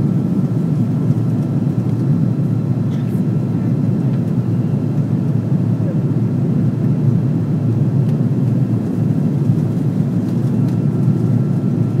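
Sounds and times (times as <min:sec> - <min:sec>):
airplane cabin engine drone: 0:00.0 - 0:12.0.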